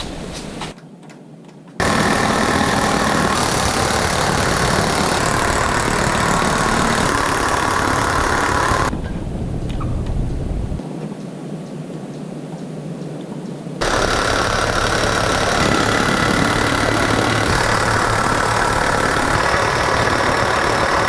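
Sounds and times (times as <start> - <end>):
power tool motor running: 1.8 - 8.9, 13.8 - 21.0.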